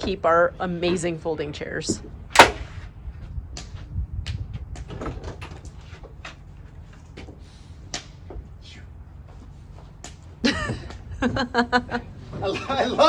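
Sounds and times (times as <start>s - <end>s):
sharp knock: 2.4s - 2.8s.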